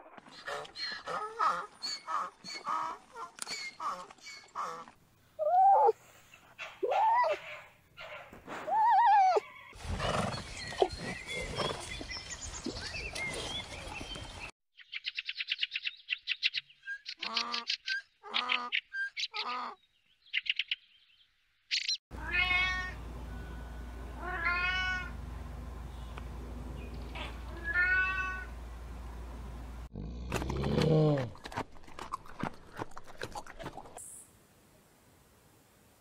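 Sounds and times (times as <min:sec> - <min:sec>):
cat meowing: 0:22.2 - 0:23.0, 0:24.2 - 0:25.1, 0:27.2 - 0:28.5.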